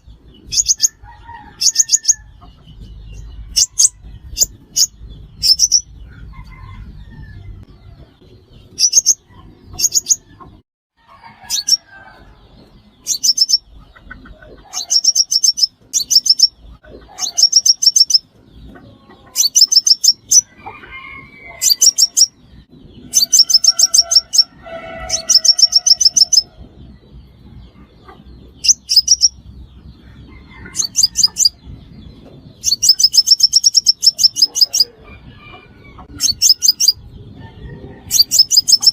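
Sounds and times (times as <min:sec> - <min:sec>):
high-pitched bird chips: 0:13.1 - 0:13.7, 0:19.4 - 0:20.5, 0:32.6 - 0:34.9, 0:36.2 - 0:37.0, 0:38.1 - 0:38.9.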